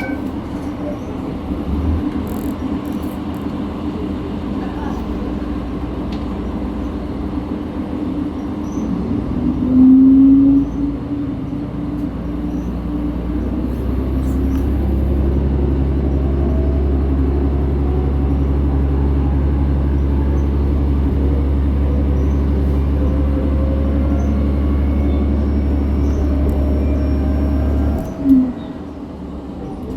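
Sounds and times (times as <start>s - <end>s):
brief loud tone: 0.0s - 0.3s
diesel railcar engine: 0.0s - 29.9s.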